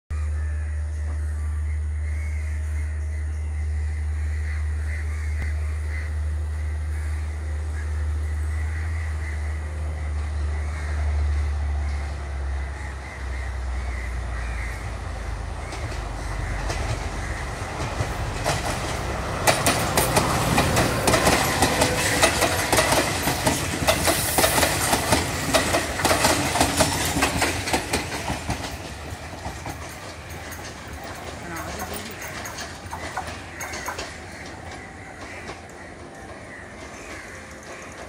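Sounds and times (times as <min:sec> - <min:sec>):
train low drone: 0:00.1 - 0:38.0
train wheels clickety-clack: 0:13.6 - 0:38.0.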